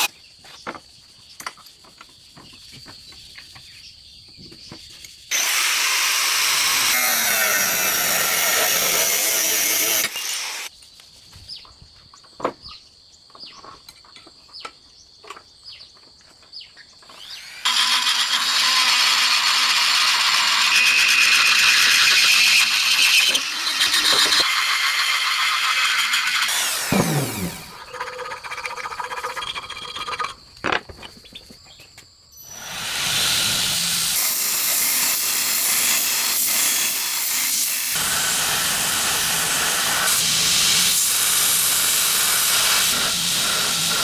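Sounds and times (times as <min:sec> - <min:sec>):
power grinder sharpening knife blade: 0:05.3 - 0:10.7, 0:17.1 - 0:30.4, 0:32.5 - 0:44.0
grinder winding down whine: 0:17.1 - 0:30.3.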